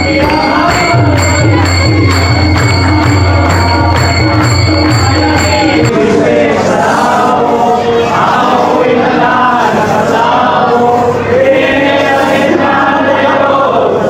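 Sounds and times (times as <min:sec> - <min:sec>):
group chanting devotional song: 0:00.0 - 0:14.0.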